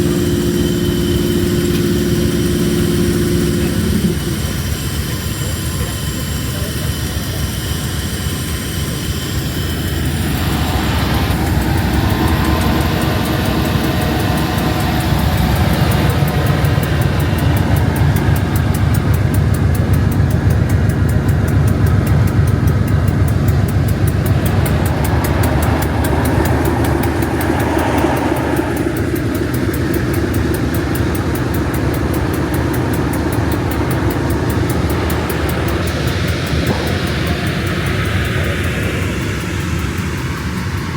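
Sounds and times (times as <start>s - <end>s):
diesel train engine running: 0.0s - 40.9s.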